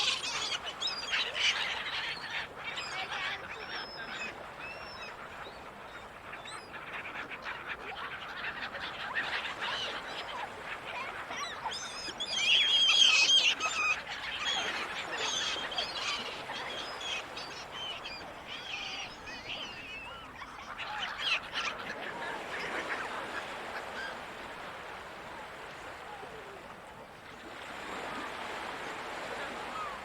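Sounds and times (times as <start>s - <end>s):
seagulls calling: 0.0s - 26.6s, 27.5s - 30.0s
sea noise: 0.0s - 30.0s.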